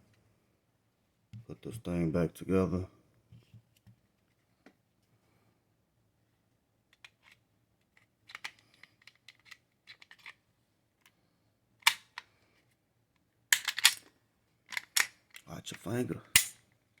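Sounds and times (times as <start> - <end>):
small metal clicks and scraping: 7.0 - 10.4, 13.5 - 14.1, 14.7 - 15.5
sharp metallic snap: 16.4 - 16.6.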